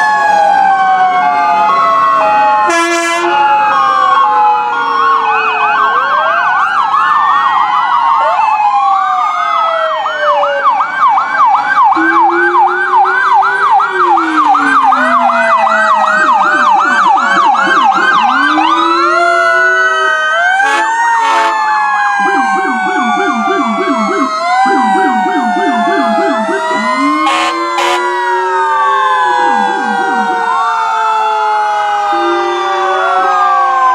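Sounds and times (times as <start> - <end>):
electronic siren yelp: 0.0 - 33.9
low siren warble: 0.0 - 33.9
siren wails: 0.0 - 33.9
short sharp horn blasts: 20.6 - 21.6, 27.2 - 28.1.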